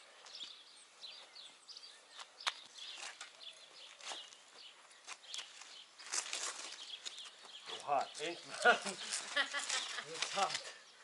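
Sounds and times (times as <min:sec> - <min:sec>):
birds chirping: 0:00.0 - 0:11.0
short clicks and scuffs: 0:05.0 - 0:07.9.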